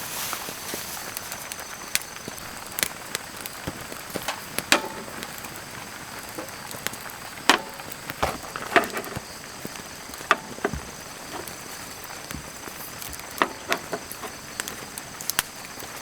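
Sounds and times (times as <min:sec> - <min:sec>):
faint hiss: 0:00.0 - 0:16.0
sharp knocks and clicks: 0:07.5 - 0:14.9.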